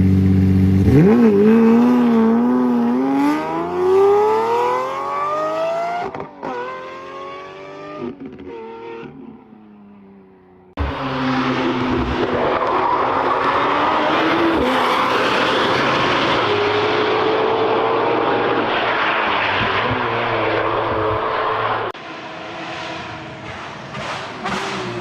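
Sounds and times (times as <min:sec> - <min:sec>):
sports car engine revving: 0:00.0 - 0:09.4, 0:22.6 - 0:25.0.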